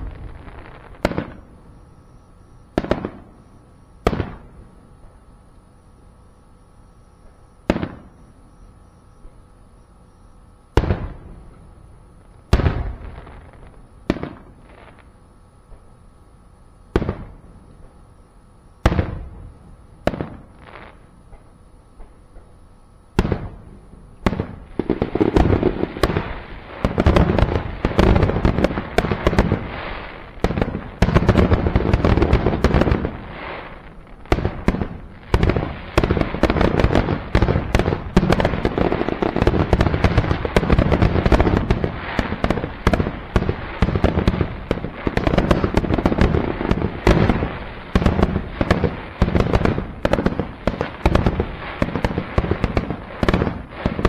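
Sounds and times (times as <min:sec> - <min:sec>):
firework shells bursting: 0:24.2 - 0:54.0.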